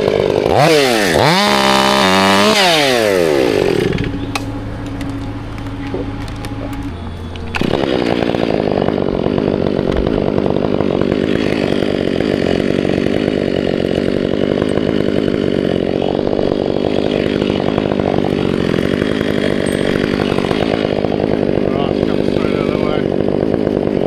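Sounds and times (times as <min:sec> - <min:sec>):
chainsaw cutting at full throttle: 0:00.0 - 0:24.0.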